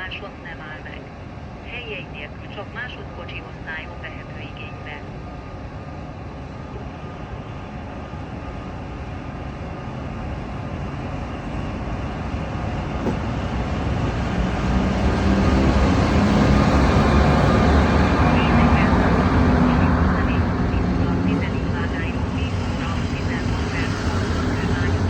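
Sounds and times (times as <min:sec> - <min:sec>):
steady low hum: 0:16.3 - 0:25.0.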